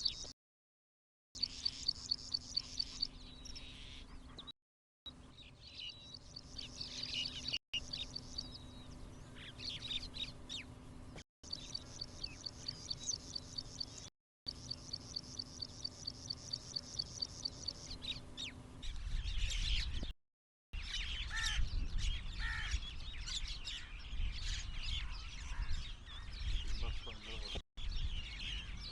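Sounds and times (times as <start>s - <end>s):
other bird chirps and calls: 20.8s - 28.9s.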